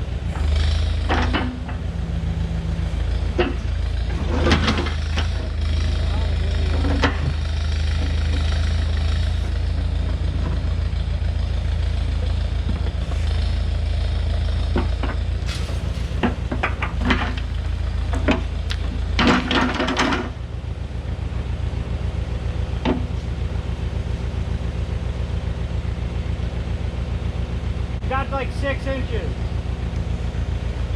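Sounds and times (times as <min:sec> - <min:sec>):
tractor engine running: 0:00.0 - 0:30.9
metal clanks and knocks: 0:01.0 - 0:01.9, 0:03.3 - 0:05.7, 0:06.5 - 0:08.6, 0:14.7 - 0:20.4.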